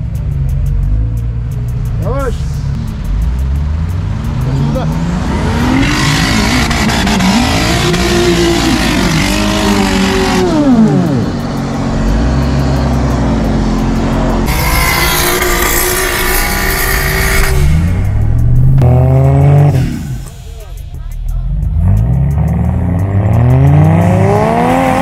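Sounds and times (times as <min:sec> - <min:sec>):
engine revving hard: 0:03.9 - 0:20.8, 0:21.8 - 0:25.0.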